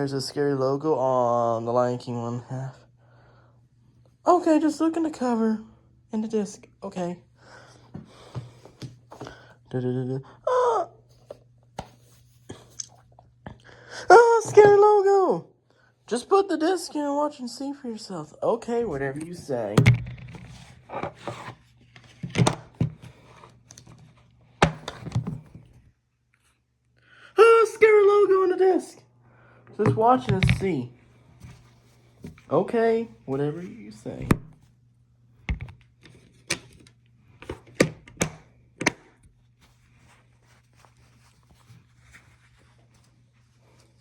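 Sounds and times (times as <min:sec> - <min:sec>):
low steady hum: 0:00.0 - 0:44.0
objects knocking: 0:29.8 - 0:30.7.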